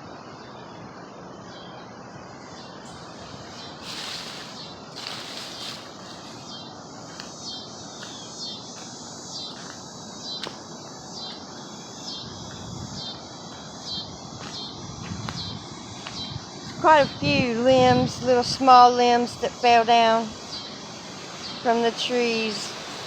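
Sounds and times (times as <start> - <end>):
background hiss: 0.0 - 23.0
insects chirping: 0.0 - 23.0
rustling: 2.9 - 7.4.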